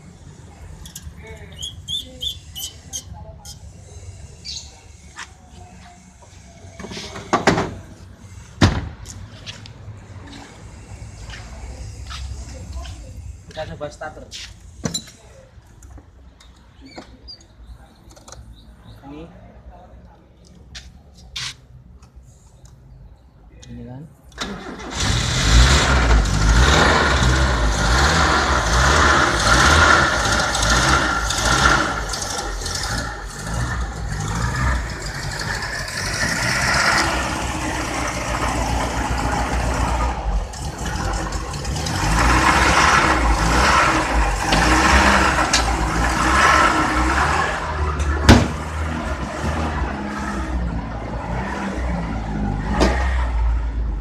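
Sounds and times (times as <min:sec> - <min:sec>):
car engine starting and running: 0:24.3 - 0:54.0.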